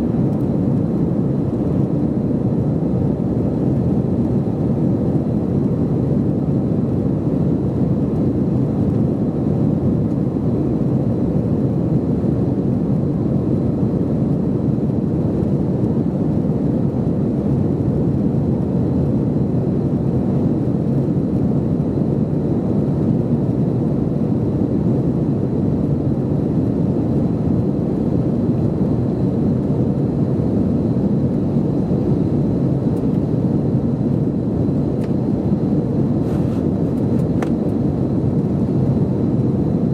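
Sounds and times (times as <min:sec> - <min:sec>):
airliner cabin rumble: 0:28.5 - 0:39.9.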